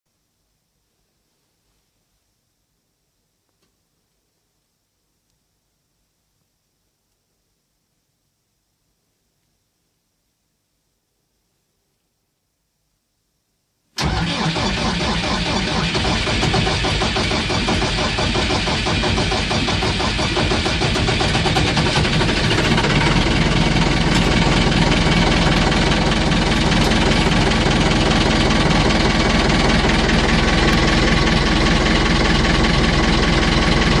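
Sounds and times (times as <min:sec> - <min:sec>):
tractor diesel engine idling: 0:14.0 - 0:34.0.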